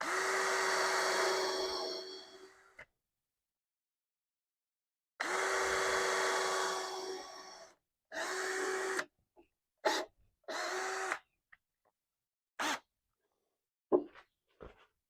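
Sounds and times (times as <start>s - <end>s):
power drill boring into wood: 0.0s - 2.8s, 5.2s - 9.1s, 9.8s - 11.2s, 12.6s - 12.9s.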